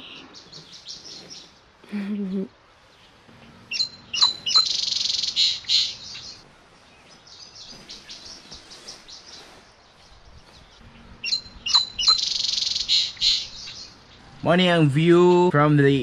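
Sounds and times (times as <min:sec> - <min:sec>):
faint bird chirps: 0:00.0 - 0:02.2, 0:02.8 - 0:15.1
bird trilling: 0:03.5 - 0:06.4, 0:10.8 - 0:14.5
bird whistles: 0:03.7 - 0:06.4, 0:11.2 - 0:13.9.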